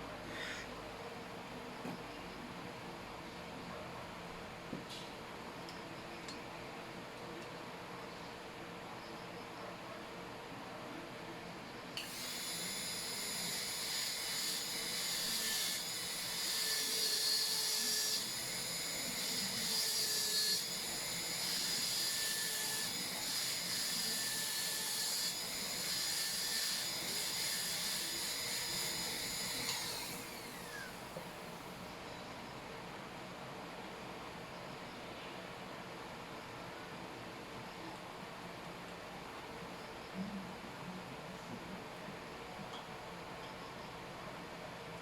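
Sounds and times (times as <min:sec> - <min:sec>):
dental drill whining: 0:12.0 - 0:31.2.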